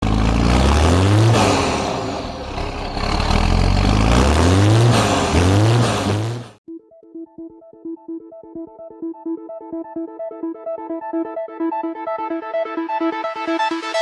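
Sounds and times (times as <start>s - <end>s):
tractor engine revving: 0.0s - 6.6s.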